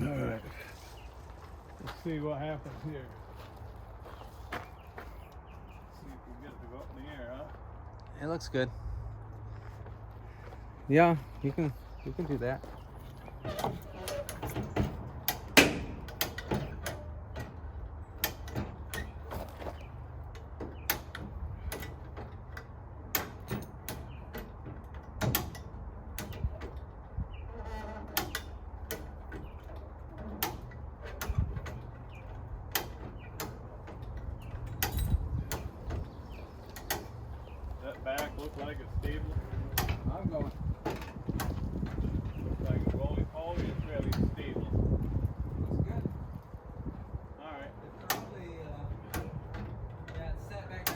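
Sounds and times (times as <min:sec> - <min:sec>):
lifting gear clicking and clanking: 0:10.8 - 0:47.0, 0:47.6 - 0:50.9.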